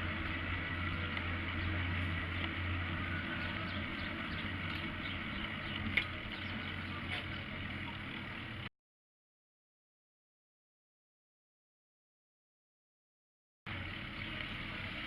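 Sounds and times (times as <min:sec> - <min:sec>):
low engine hum: 0:00.0 - 0:08.7, 0:13.7 - 0:15.0
street traffic: 0:00.0 - 0:08.7, 0:13.7 - 0:15.0.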